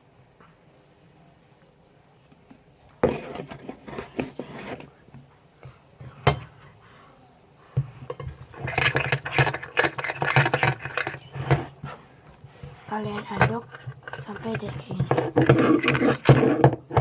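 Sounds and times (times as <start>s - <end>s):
utensil scraping and clinking container: 8.1s - 12.0s, 12.6s - 17.0s.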